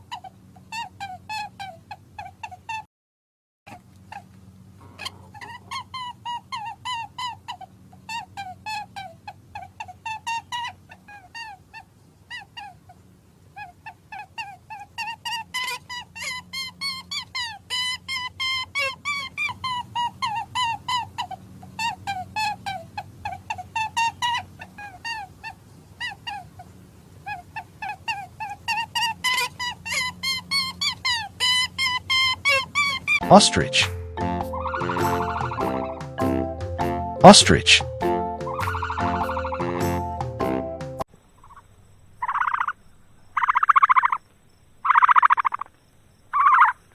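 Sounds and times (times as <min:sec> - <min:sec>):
young birds peeping: 0:15.2 - 0:40.3, 0:41.4 - 0:46.9.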